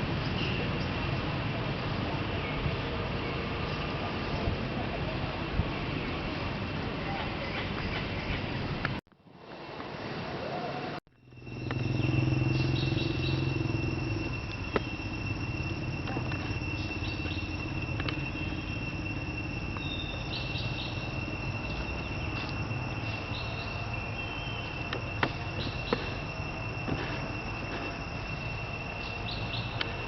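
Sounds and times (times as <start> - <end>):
insects droning: 0.0 - 30.0
high insect chirps: 11.1 - 30.0
low background rumble: 11.1 - 30.0.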